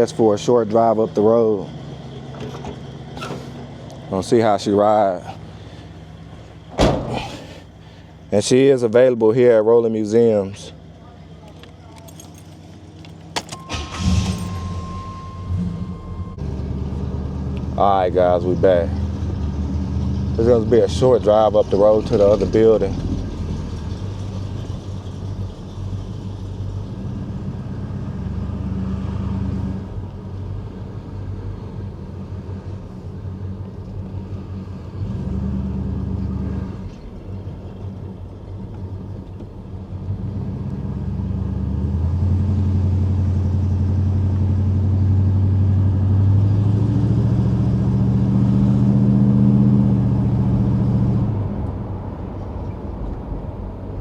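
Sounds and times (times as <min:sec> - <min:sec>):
car engine accelerating: 0:12.3 - 0:54.0.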